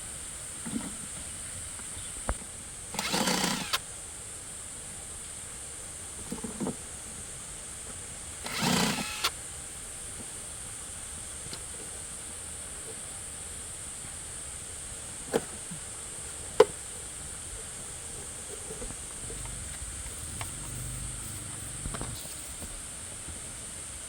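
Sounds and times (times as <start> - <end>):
steady high hiss: 0.0 - 24.0
faint low rumble: 19.2 - 22.8.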